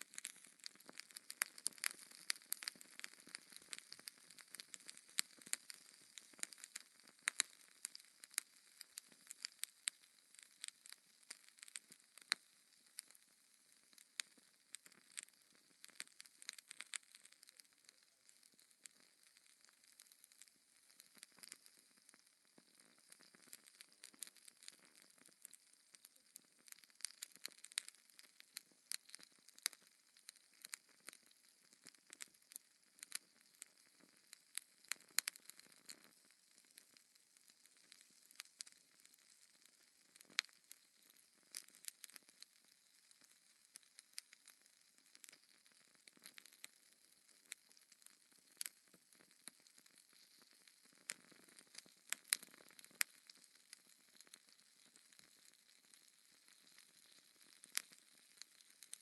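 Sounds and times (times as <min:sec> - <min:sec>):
soft fire hiss: 0:00.0 - 0:17.6
wood fire crackling and popping: 0:00.0 - 0:59.0.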